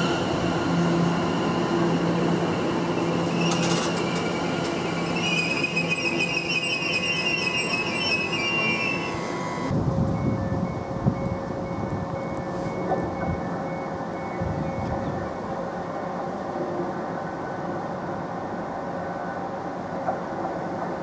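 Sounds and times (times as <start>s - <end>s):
high wavering wheel squeal: 0.0s - 10.5s
train wheels rumbling on rails: 0.0s - 21.0s.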